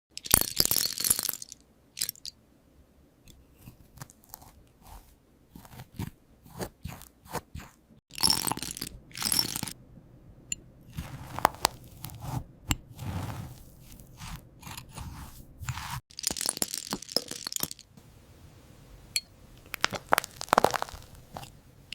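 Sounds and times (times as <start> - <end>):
toast crunching and crackling: 10.9 - 16.4, 19.6 - 21.9.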